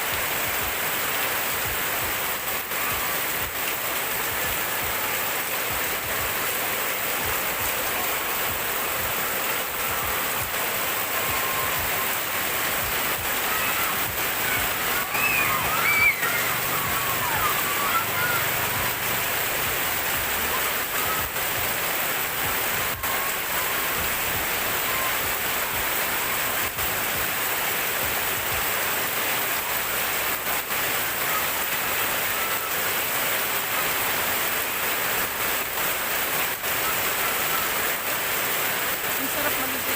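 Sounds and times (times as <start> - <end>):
heavy rain pouring: 0.0 - 39.9
faint voices: 1.5 - 27.3.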